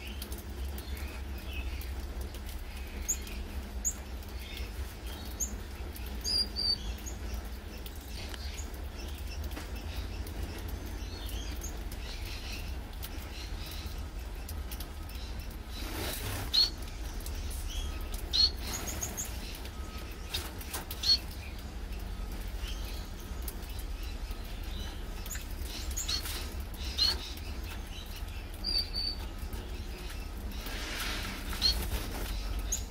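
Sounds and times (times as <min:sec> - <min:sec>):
finches chirping: 0:02.8 - 0:32.9
fluttering wings: 0:15.4 - 0:21.4, 0:29.4 - 0:32.9.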